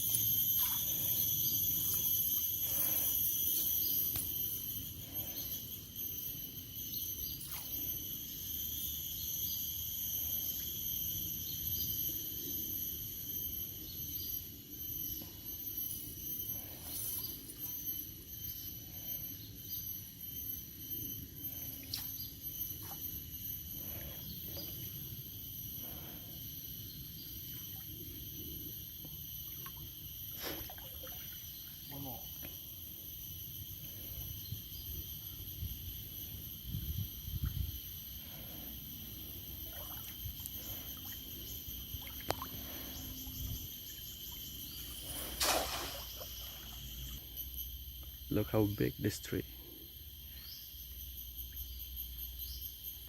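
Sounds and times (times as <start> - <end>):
insects chirring: 0.0 - 53.0
short water splash: 45.3 - 46.6.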